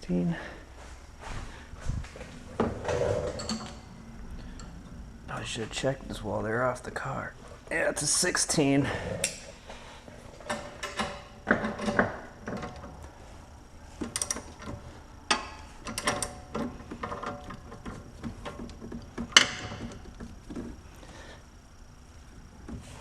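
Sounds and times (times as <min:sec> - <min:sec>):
metal-on-metal clinks: 0:03.0 - 0:03.9.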